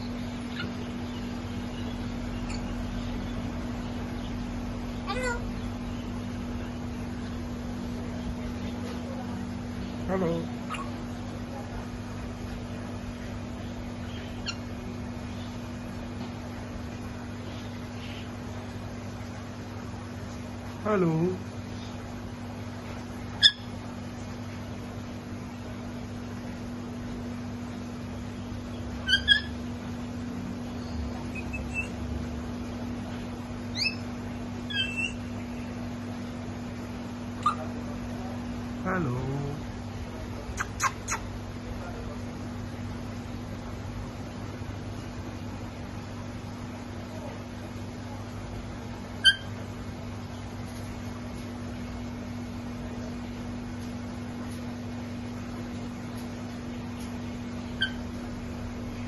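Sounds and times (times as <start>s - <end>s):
parrot chirp: 0.0s - 6.6s, 10.0s - 11.1s, 13.8s - 15.6s, 23.3s - 23.8s, 28.7s - 29.9s, 30.6s - 32.2s, 33.7s - 35.7s, 37.4s - 37.8s, 40.5s - 41.3s, 49.1s - 49.6s, 57.6s - 58.2s
steady low hum: 0.0s - 59.0s
parrot whistled chirps: 23.4s - 23.7s, 29.0s - 29.6s, 31.3s - 32.0s, 33.7s - 34.0s, 34.7s - 35.2s, 49.2s - 49.5s, 57.8s - 58.0s.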